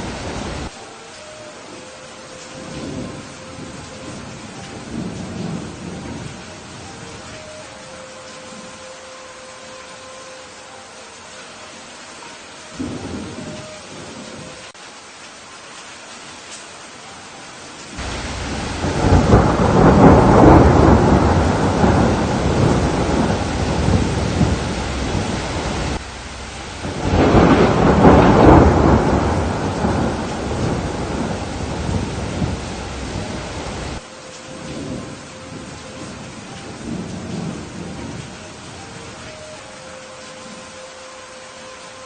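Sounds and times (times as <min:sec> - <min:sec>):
steady rain: 0:00.0 - 0:42.0
thunder rolling: 0:18.0 - 0:38.6.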